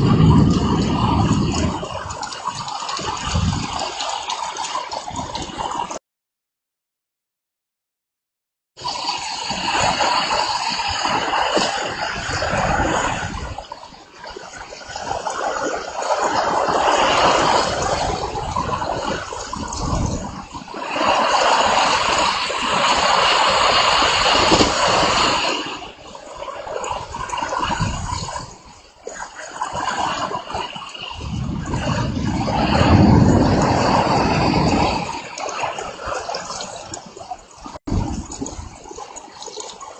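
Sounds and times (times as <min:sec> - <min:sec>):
pouring rain: 0:00.0 - 0:06.0, 0:08.9 - 0:39.9
wind gusts buffeting microphone: 0:00.0 - 0:06.0, 0:08.8 - 0:39.3.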